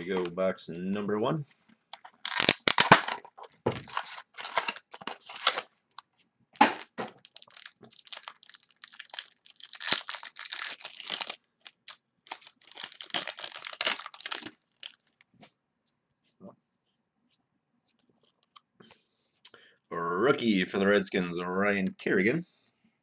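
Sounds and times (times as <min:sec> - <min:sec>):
plastic wrapping torn and crinkled: 0:01.9 - 0:15.2.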